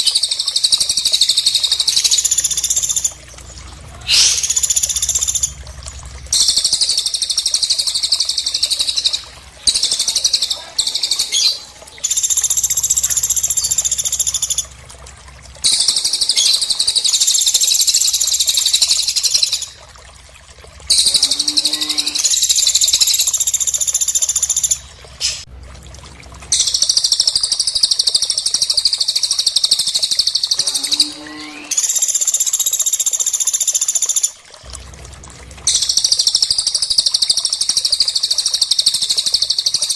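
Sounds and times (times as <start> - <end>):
bird trilling: 4.0 - 5.6.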